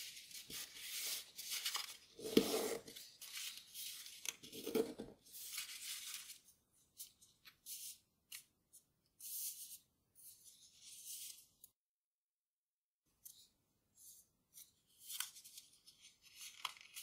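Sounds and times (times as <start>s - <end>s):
paper rustling and crinkling: 0.0s - 8.4s, 14.5s - 17.0s.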